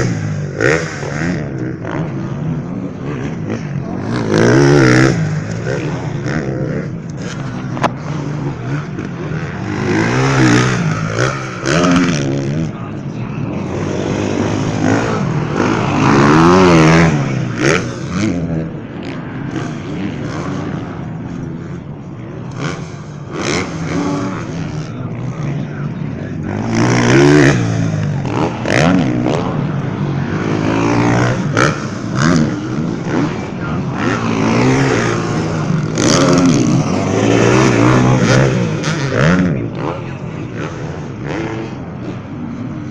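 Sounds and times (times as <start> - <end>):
motocross bike engines revving: 0.0 - 42.9.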